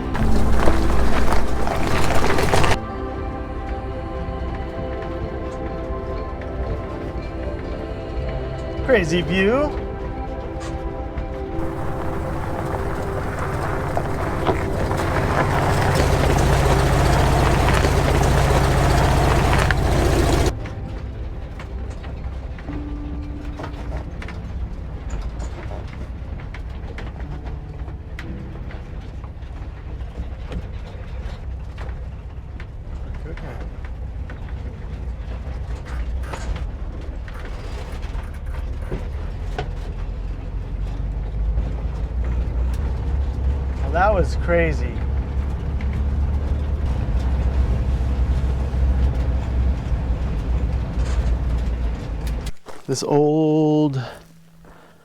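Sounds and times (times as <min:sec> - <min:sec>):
body rattles and creaks: 0:00.0 - 0:02.8, 0:11.6 - 0:20.5, 0:50.4 - 0:53.1
engine and road rumble: 0:00.0 - 0:04.6, 0:11.6 - 0:53.3, 0:53.9 - 0:55.0.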